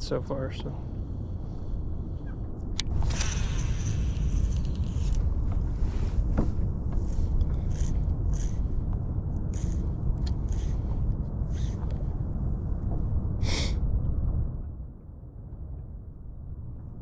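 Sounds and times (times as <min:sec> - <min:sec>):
wind buffeting microphone: 0:00.3 - 0:17.0
short soft hisses: 0:03.0 - 0:05.2.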